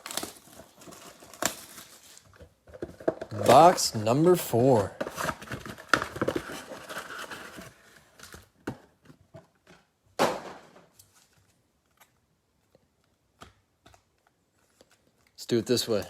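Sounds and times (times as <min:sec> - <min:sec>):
packaging rustling: 0:00.0 - 0:08.5.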